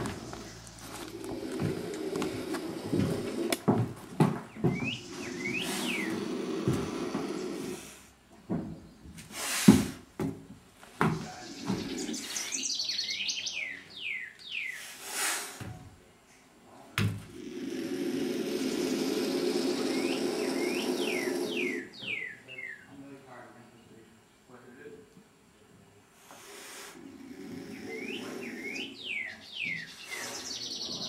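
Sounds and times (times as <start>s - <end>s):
birds hissing: 0.0s - 8.2s, 9.2s - 10.0s, 11.0s - 15.7s, 17.2s - 22.8s, 26.2s - 31.0s.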